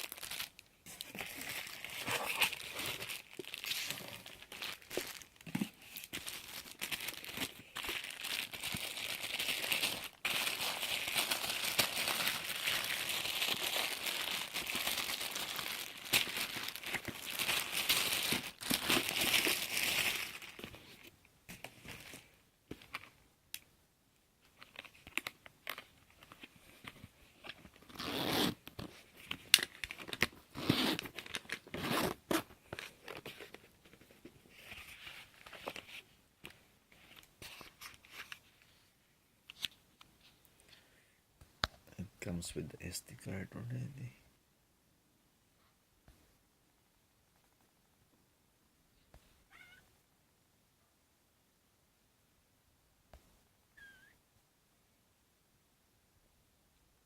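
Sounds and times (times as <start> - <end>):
packaging crinkling and tearing: 0.0 - 20.8, 28.6 - 33.6.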